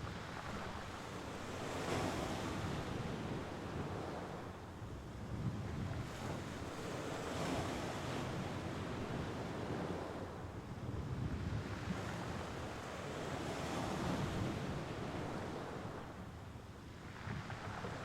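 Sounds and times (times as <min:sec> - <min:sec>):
sea waves washing ashore: 0:00.0 - 0:04.7
wind on microphone: 0:00.0 - 0:12.8, 0:16.9 - 0:18.0.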